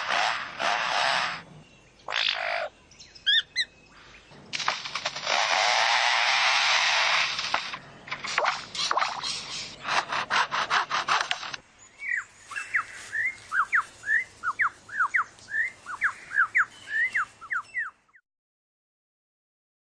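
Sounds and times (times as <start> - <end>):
bird mimicking chainsaw rattle: 4.5 - 11.6.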